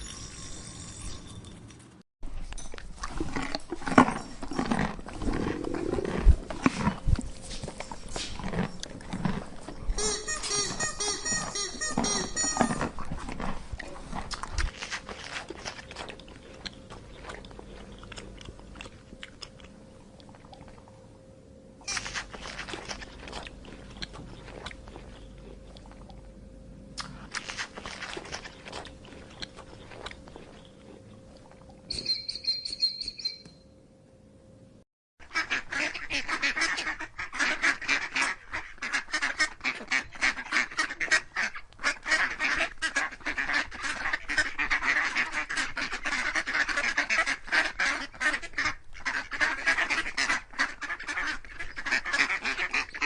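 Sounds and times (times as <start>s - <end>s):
waterfowl quacking and honking: 10.0s - 12.9s.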